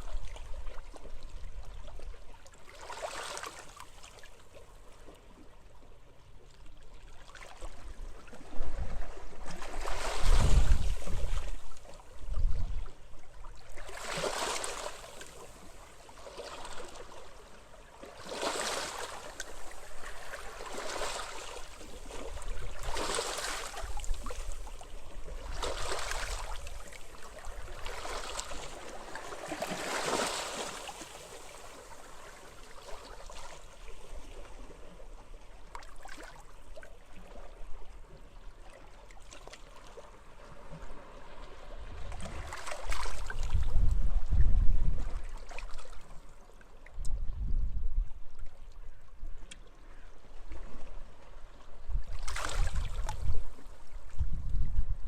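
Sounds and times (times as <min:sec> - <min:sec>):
small waves washing on beach: 0:13.7 - 0:35.2.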